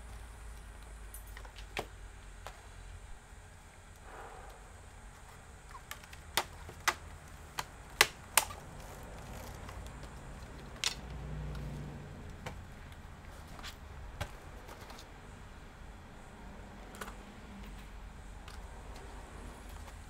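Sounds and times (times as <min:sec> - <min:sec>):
sharp clicks of small parts: 0:05.7 - 0:11.7.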